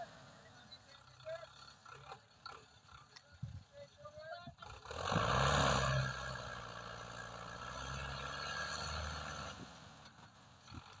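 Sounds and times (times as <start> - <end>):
tractor diesel engine running: 0.0 - 8.3.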